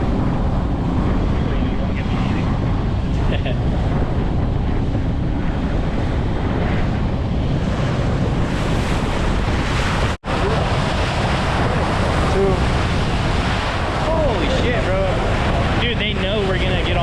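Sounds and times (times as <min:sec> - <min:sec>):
sea water rushing along boat: 0:00.0 - 0:17.0
wind buffeting microphone: 0:00.0 - 0:17.0.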